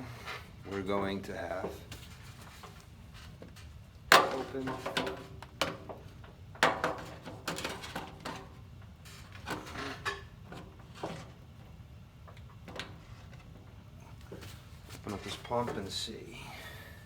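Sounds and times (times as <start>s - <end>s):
low steady hum: 13.6s - 17.0s.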